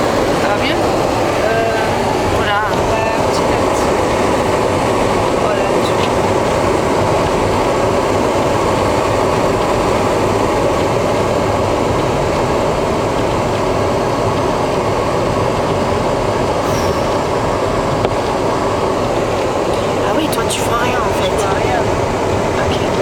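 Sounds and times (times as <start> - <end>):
car road and engine noise: 0.0 - 23.0.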